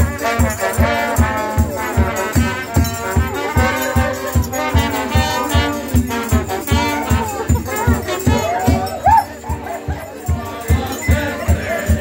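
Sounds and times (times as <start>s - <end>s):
bass drum beat: 0.0s - 12.0s
brass band playing: 0.0s - 12.0s.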